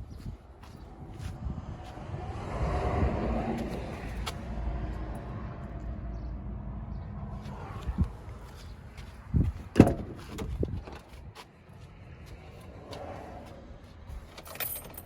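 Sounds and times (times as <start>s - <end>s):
vehicle passing: 0.6s - 9.7s, 11.6s - 14.3s.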